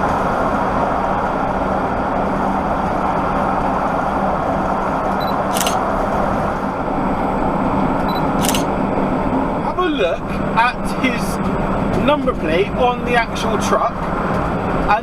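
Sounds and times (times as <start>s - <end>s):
lorry engine and road noise: 0.0s - 15.0s
sharp high click: 5.5s - 5.8s, 8.1s - 8.7s.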